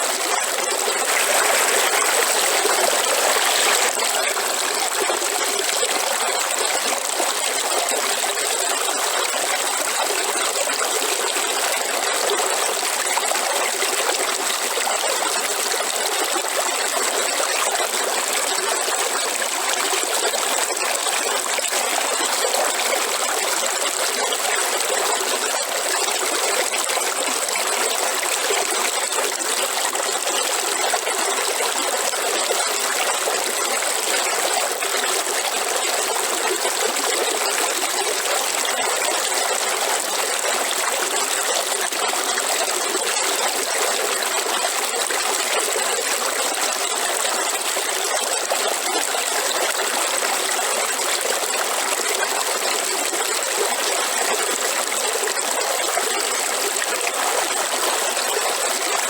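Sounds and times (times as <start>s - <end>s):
waterfall rushing: 1.0s - 3.9s.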